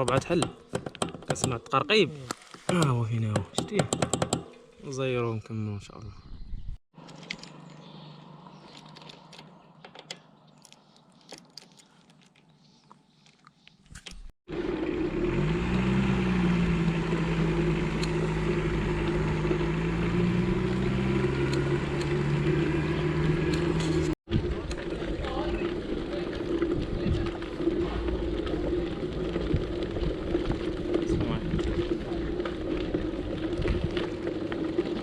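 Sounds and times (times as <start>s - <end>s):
vehicle engine running loud: 14.5s - 35.0s.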